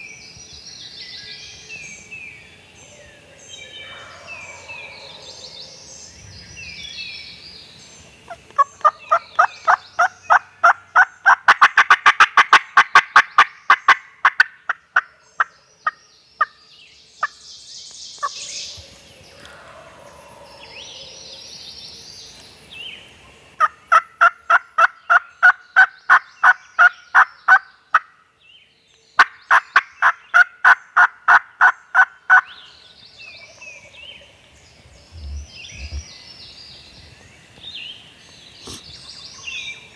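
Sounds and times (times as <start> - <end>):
turkeys gobbling: 8.3 - 15.1, 23.6 - 26.6, 29.8 - 32.4, 38.6 - 38.8
faint high bird calls: 32.4 - 39.9.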